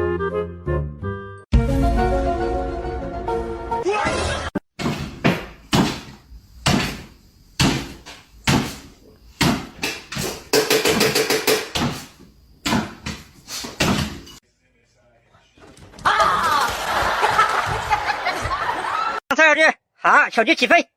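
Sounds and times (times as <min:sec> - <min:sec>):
music: 0:00.0 - 0:04.5
sharp ringing knocks: 0:09.4 - 0:12.0.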